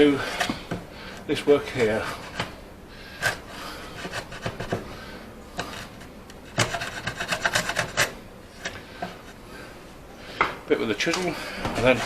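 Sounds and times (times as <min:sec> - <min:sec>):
chisel scraping wood: 0:01.6 - 0:09.4, 0:11.6 - 0:12.0.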